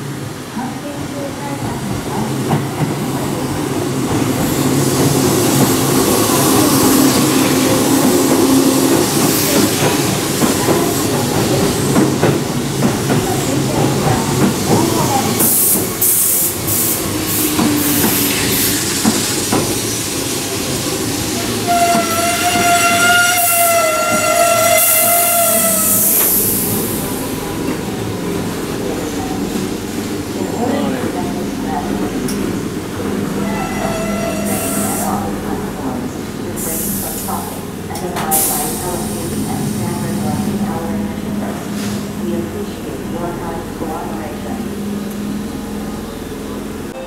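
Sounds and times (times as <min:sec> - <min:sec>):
train rumble and wheel clatter: 0:00.0 - 0:47.0.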